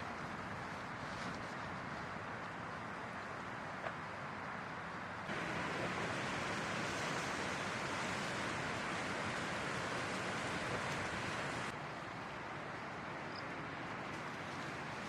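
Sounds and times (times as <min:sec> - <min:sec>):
strong wind blowing: 0:05.3 - 0:11.7.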